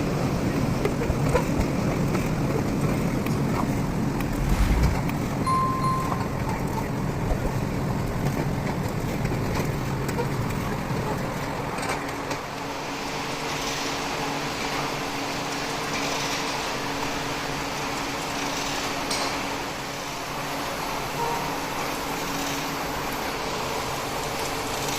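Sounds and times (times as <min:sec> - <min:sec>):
mechanical rumble: 0:03.7 - 0:05.4.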